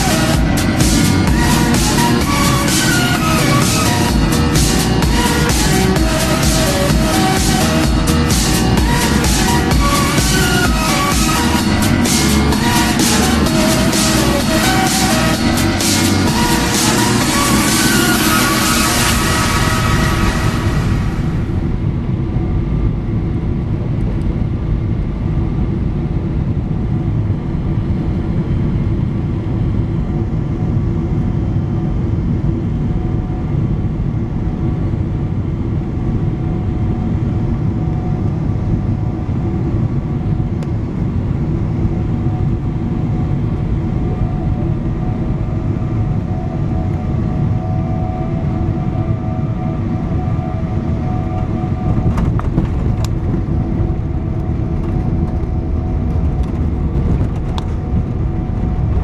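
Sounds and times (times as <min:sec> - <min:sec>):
faint steady engine tones: 0:00.0 - 0:59.0
jet cabin engine rumble: 0:00.0 - 0:59.0.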